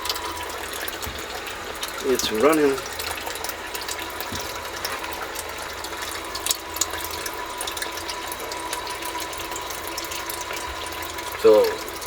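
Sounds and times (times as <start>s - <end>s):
sump pump humming: 0.0s - 12.0s
water churning and splashing: 0.0s - 12.0s.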